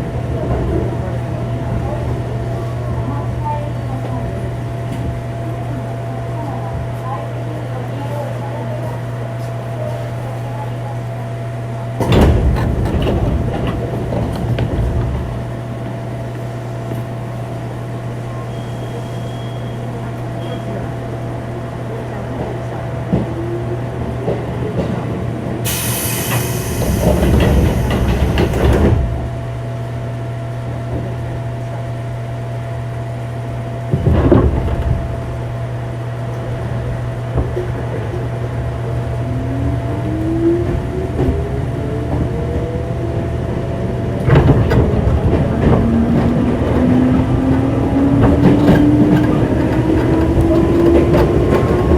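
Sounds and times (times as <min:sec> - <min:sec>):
rail rumble: 0:00.0 - 0:51.9
train motor humming: 0:19.9 - 0:31.8, 0:36.3 - 0:51.9
air hiss: 0:25.7 - 0:28.5.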